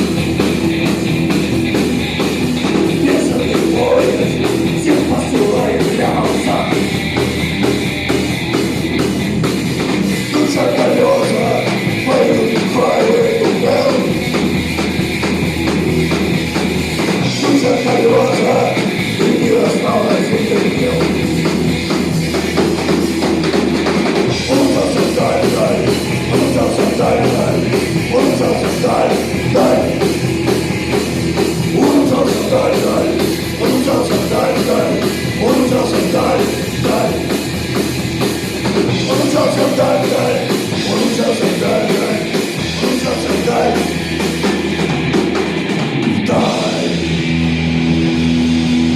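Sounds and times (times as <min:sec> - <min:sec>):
bass guitar: 0:00.0 - 0:48.9
distorted electric guitars: 0:00.0 - 0:48.9
drum kit beat: 0:00.0 - 0:48.9.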